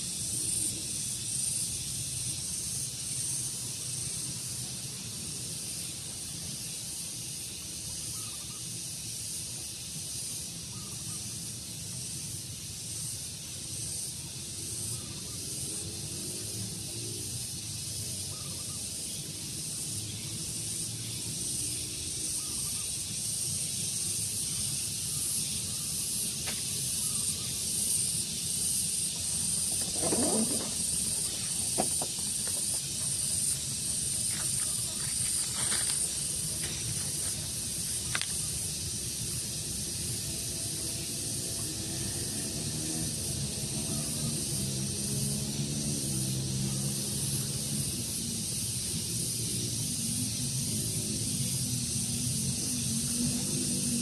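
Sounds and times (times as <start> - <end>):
steady high hiss: 0.0 - 54.0.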